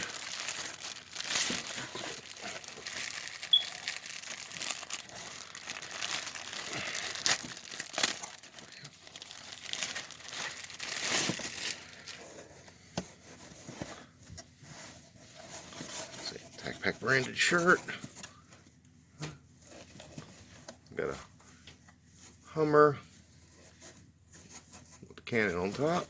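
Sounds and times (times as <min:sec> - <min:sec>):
plastic packaging crinkling and tearing: 0:00.0 - 0:12.5.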